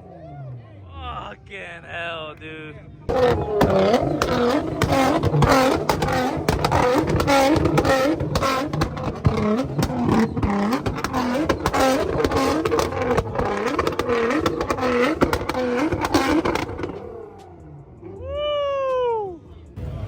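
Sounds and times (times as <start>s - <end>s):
exhaust pops and bangs: 3.1s - 17.6s
car engine revving hard: 3.1s - 18.2s.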